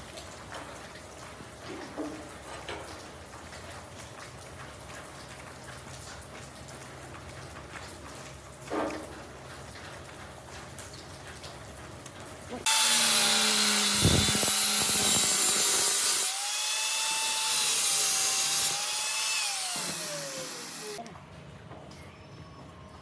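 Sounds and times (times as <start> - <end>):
power tool cutting metal: 12.7 - 21.0.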